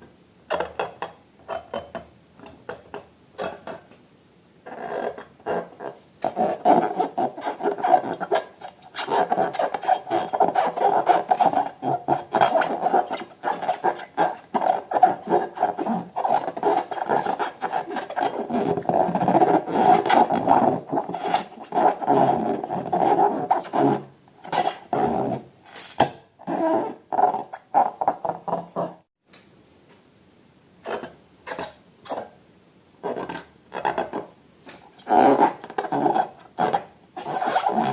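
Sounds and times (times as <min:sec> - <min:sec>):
rubbery squeaking: 0:04.7 - 0:29.1, 0:33.0 - 0:34.3, 0:34.9 - 0:37.9.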